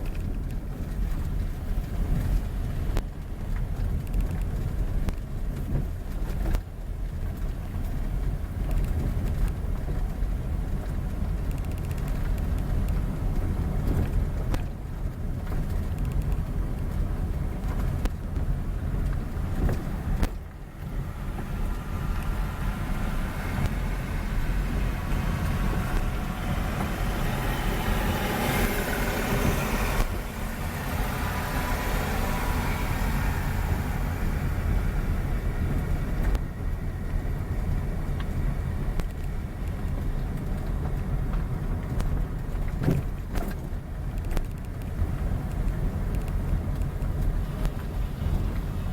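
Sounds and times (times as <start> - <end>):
road vehicle low rumble: 0.0 - 48.9
vehicle rushing past: 19.5 - 36.4.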